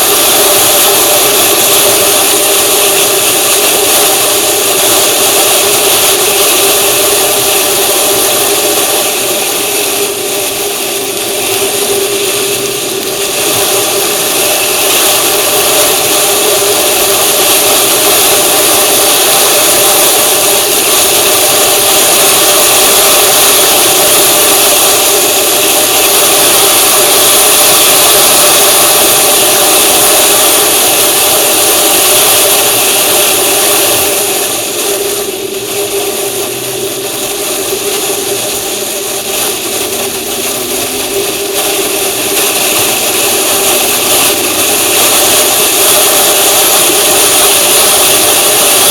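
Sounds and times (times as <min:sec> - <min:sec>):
droning tones: 0:00.0 - 0:48.9
vehicle engine running: 0:28.5 - 0:48.9.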